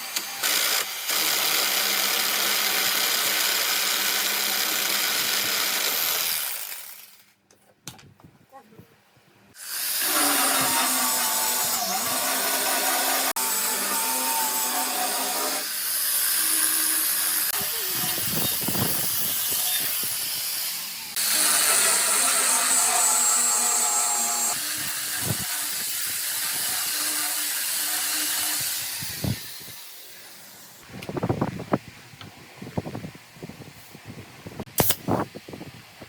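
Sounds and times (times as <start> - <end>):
woodworking power tools hissing: 9.6 - 30.8.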